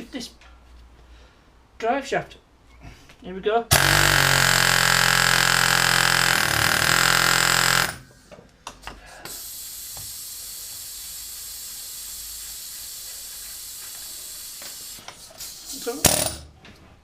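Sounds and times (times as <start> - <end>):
pneumatic air hammer buzzing: 3.7 - 8.2
compressed air hissing: 9.1 - 16.0.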